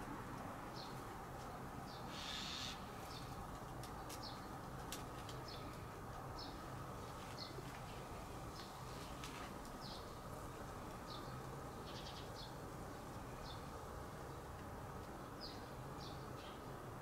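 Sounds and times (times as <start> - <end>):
outdoor background noise: 0.0 - 17.0
bird chirping: 11.1 - 12.6.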